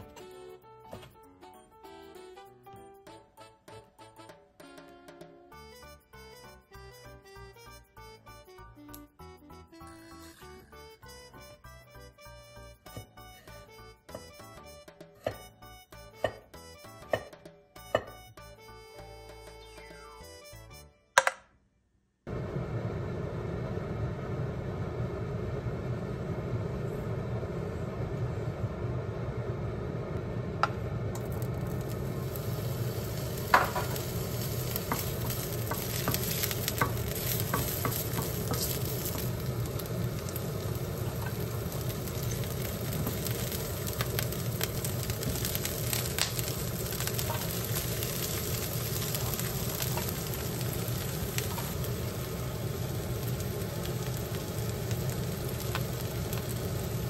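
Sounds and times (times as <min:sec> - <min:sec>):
garlic sizzling in hot oil: 0:30.8 - 0:57.0.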